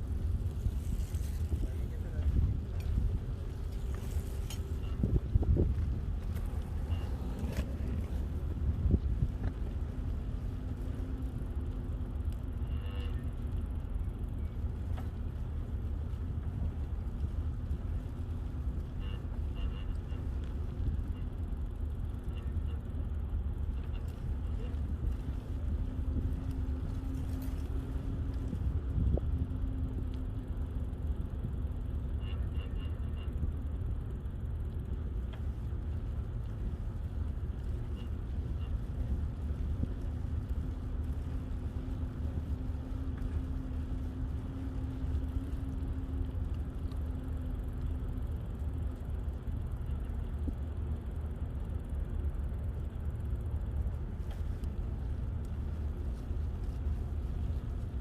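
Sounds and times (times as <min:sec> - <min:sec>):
wind buffeting microphone: 0:00.0 - 0:12.7, 0:23.0 - 0:31.9
bicycle tyre noise on pavement: 0:00.0 - 0:58.0
faint low hum: 0:00.0 - 0:58.0.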